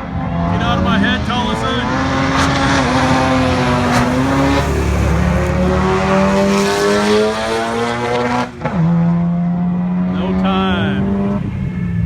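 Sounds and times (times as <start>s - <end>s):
car engine at full throttle: 0.0s - 12.0s
gear shift: 1.2s - 8.8s.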